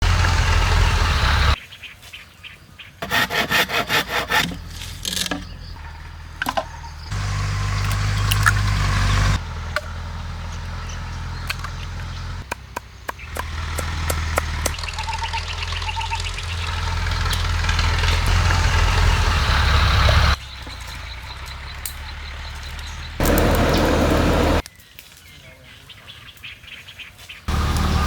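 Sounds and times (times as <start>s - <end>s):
sawing bamboo: 3.0s - 9.4s
knocks and taps on bamboo: 12.4s - 14.8s.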